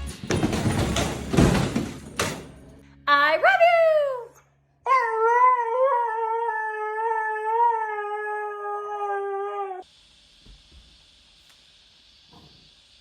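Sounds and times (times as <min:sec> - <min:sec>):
dog howling: 0:04.9 - 0:09.8
faint hiss: 0:09.8 - 0:13.0.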